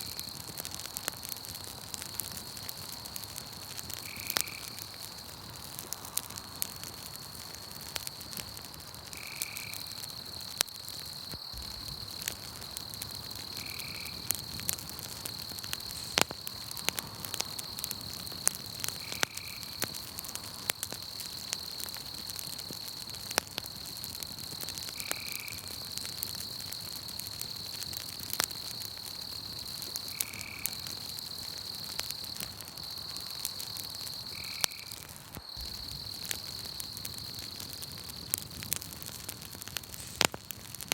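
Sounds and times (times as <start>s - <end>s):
campfire crackling with pops: 0.0s - 40.9s
night insects trilling: 0.0s - 40.9s.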